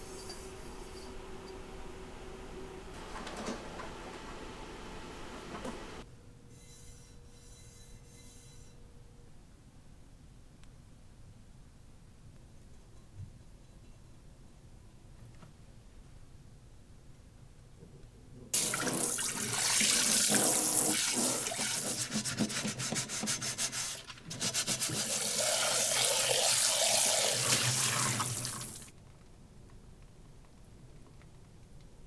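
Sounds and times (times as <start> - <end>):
tap running water into sink: 18.6 - 28.9.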